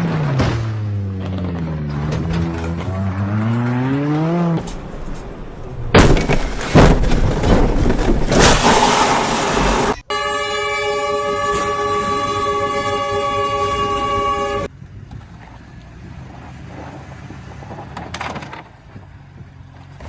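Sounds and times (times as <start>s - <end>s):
car engine: 0.0s - 10.1s
loud harsh crashing noise: 5.9s - 10.0s.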